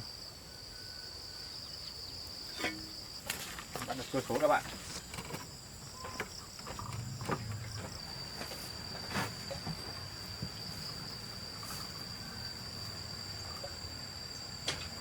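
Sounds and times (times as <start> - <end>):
insects trilling: 0.0 - 15.0
sharp knocks and scrapes: 2.5 - 10.6.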